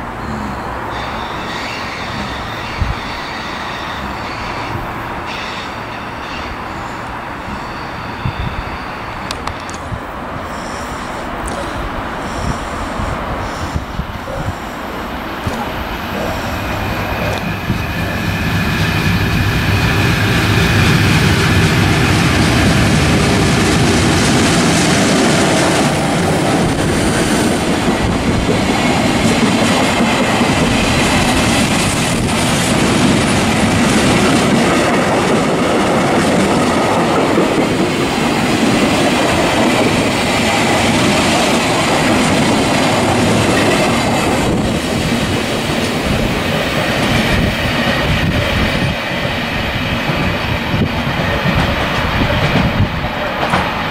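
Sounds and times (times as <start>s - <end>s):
high wheel squeal: 0.0s - 22.1s
train wheels rumbling and clattering: 0.0s - 53.9s.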